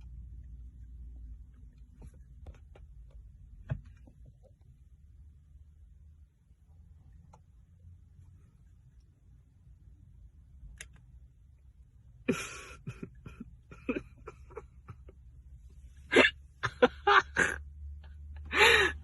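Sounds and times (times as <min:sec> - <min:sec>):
low steady hum: 0:00.0 - 0:19.0
person's stifled laughter: 0:12.3 - 0:15.2, 0:16.1 - 0:19.0.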